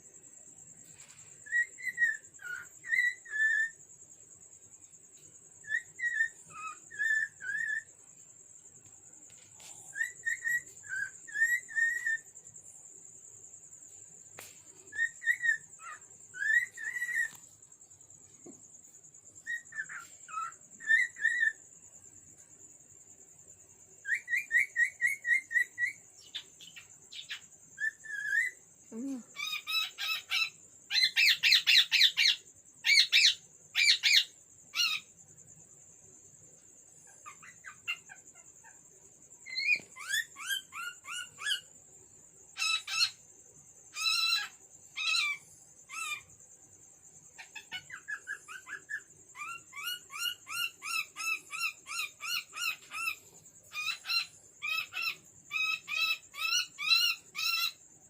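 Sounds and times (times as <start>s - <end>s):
cockatiel whistling and chirping: 1.5s - 3.8s, 5.7s - 7.9s, 10.0s - 12.2s, 14.9s - 17.4s, 19.4s - 21.6s, 47.5s - 57.7s
squawky bird calls: 1.5s - 3.8s, 5.6s - 7.9s, 9.9s - 12.3s, 14.9s - 17.4s, 43.9s - 46.3s, 47.4s - 57.8s.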